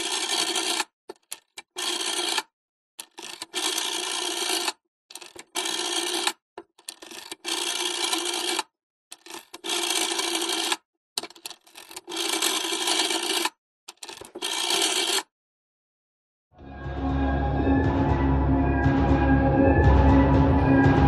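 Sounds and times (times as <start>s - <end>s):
small clicks: 0.6s - 3.8s, 4.6s - 15.3s.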